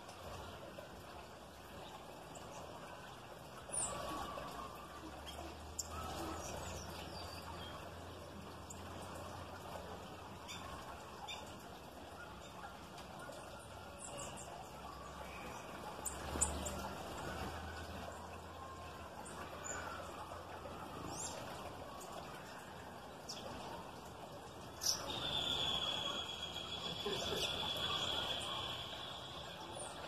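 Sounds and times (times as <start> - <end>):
small birds chirping: 18.2 - 30.0.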